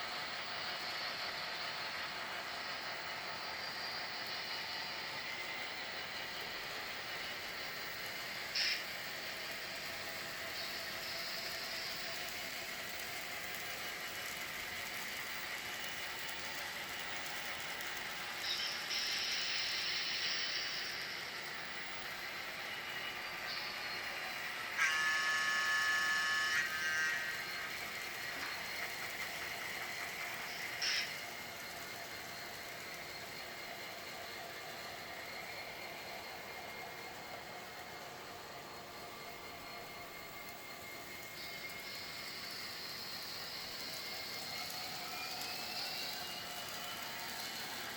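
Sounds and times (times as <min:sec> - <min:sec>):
train rolling by: 0:00.0 - 0:47.9
high-pitched squeal: 0:23.5 - 0:29.0.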